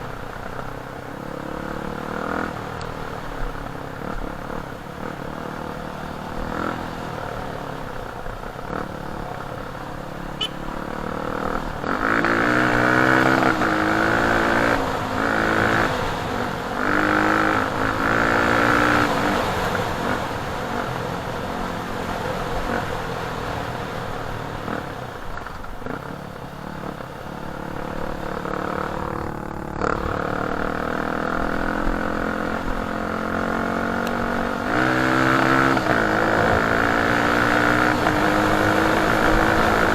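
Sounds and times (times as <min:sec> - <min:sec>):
dirt bike engine revving: 0:10.2 - 0:20.4, 0:27.6 - 0:39.9.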